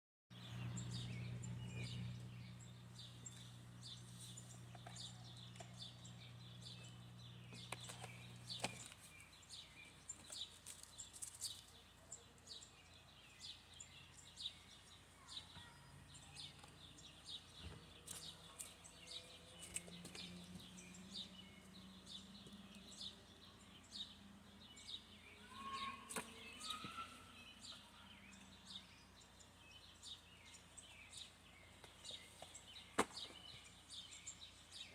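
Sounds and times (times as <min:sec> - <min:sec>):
small birds chirping: 0:00.3 - 0:34.9
steady low hum: 0:00.4 - 0:10.2.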